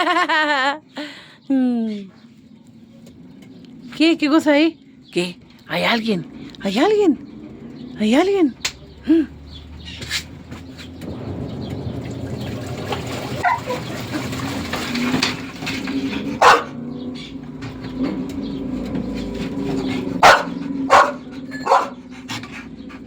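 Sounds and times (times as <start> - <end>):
dog barking: 13.4 - 13.9, 16.4 - 16.8, 20.1 - 22.1.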